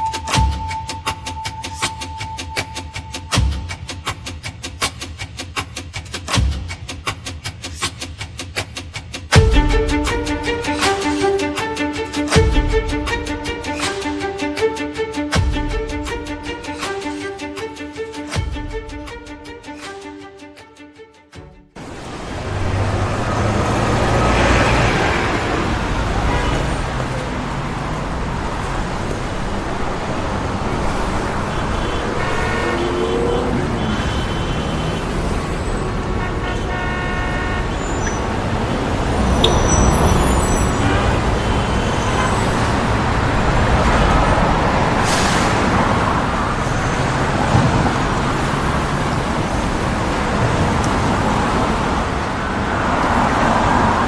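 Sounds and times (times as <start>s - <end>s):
vehicles passing: 0.0s - 54.0s
horn-like tone: 31.5s - 35.2s, 36.2s - 38.2s, 39.2s - 42.6s.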